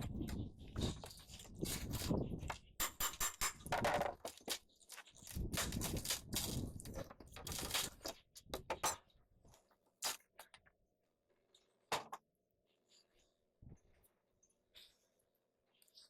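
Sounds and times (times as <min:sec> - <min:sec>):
crunching and scraping: 0:00.0 - 0:02.8, 0:03.5 - 0:08.5, 0:09.4 - 0:10.7.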